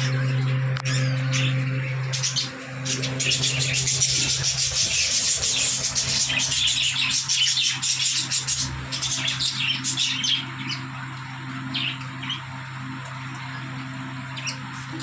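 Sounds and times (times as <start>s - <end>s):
budgerigars chirping and chattering: 0.0s - 11.1s, 11.7s - 12.5s
steady low hum: 0.0s - 15.0s.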